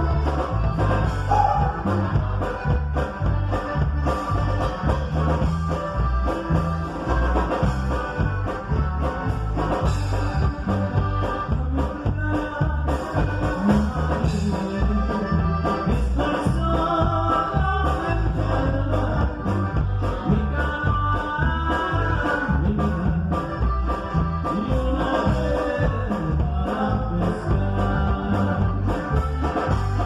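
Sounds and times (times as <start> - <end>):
band playing a song: 0.0 - 30.0.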